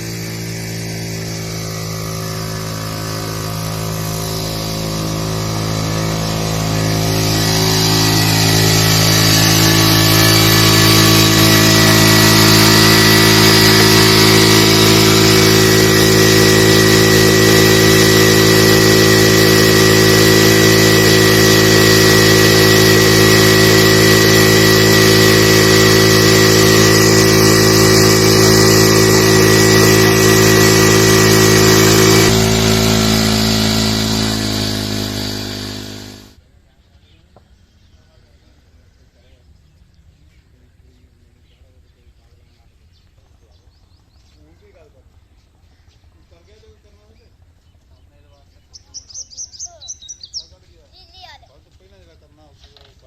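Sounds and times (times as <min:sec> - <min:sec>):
engine running steadily: 0:00.0 - 0:36.4.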